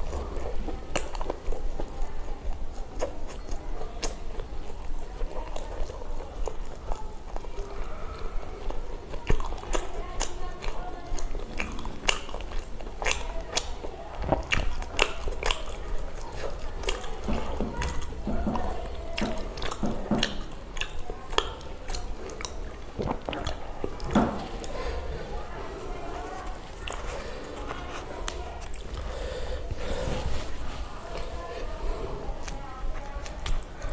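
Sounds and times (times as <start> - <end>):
wet mouth clicks: 0.0 - 25.5, 26.3 - 31.3, 32.2 - 33.9
wet chewing and lip smacking: 0.0 - 33.9.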